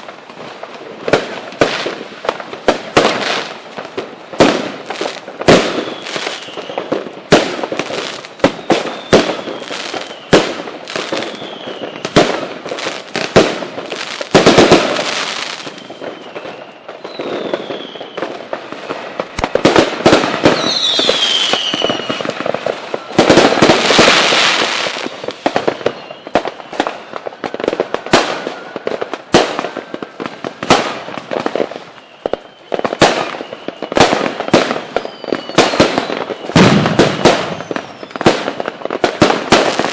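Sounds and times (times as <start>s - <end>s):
fireworks bangs: 0.0s - 39.9s
fireworks crackling: 0.0s - 39.9s
faint falling whistles: 5.7s - 6.9s, 8.4s - 10.4s, 11.1s - 12.1s, 15.4s - 18.4s, 20.4s - 23.3s, 25.0s - 27.2s, 31.7s - 34.1s, 34.8s - 39.0s.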